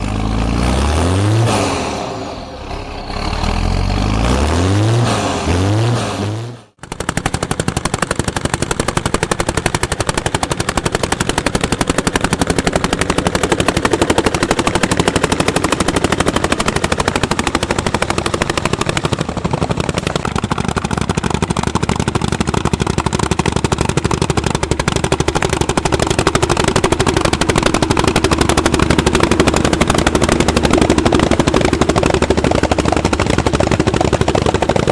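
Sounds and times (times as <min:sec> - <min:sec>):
rising and falling pitch sweeps: 0:00.0 - 0:06.7
tractor engine popping: 0:06.7 - 0:34.9.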